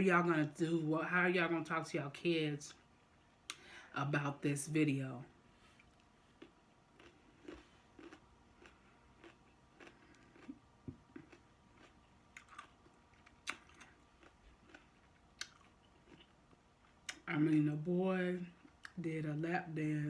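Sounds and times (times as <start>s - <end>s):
chewing food: 5.8s - 17.6s.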